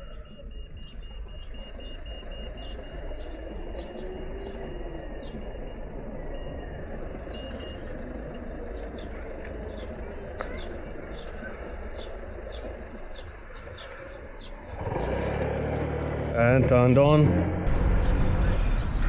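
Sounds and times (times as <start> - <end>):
faint high beeping: 0.0 - 14.7
traffic rumble: 0.0 - 19.0.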